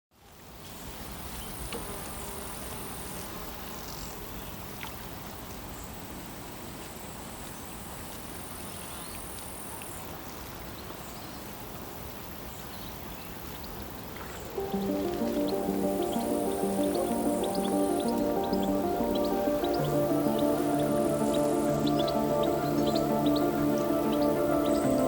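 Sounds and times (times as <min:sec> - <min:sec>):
steady background hiss: 0:14.4 - 0:25.0.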